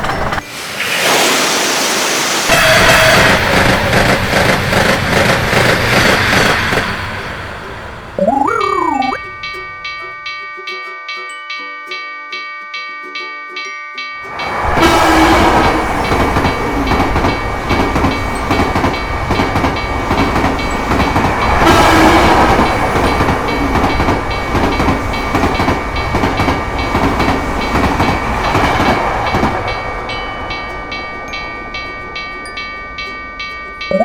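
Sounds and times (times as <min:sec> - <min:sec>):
train passing with wheels clattering: 0:00.0 - 0:12.1, 0:12.8 - 0:34.0
railroad crossing bell ringing: 0:08.2 - 0:34.0.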